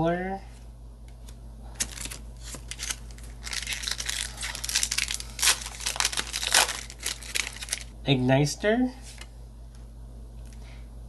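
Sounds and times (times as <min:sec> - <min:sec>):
foil wrapper crinkling: 0:01.8 - 0:07.9.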